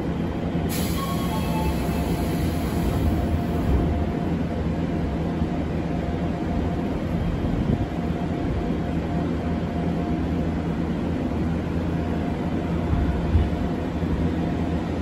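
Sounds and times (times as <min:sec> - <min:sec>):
brief hiss: 0:00.7 - 0:03.3
train cabin rumble: 0:00.7 - 0:05.7.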